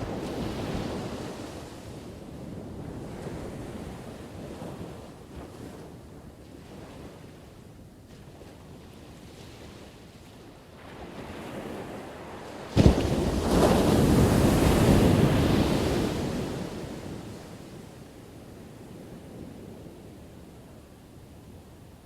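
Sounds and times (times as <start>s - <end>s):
ocean wave breaking on shore: 11.0s - 17.7s.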